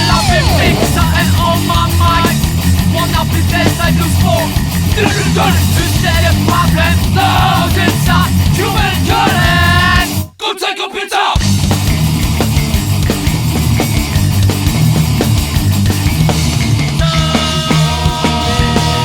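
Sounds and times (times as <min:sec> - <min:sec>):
heavy rock band playing: 0:00.0 - 0:10.3, 0:11.4 - 0:19.0.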